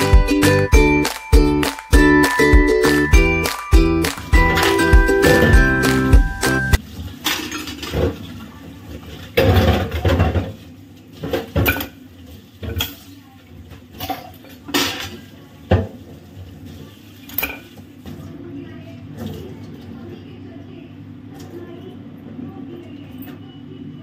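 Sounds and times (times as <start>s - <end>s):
pans and utensils clattering: 6.8s - 13.2s, 13.8s - 17.9s.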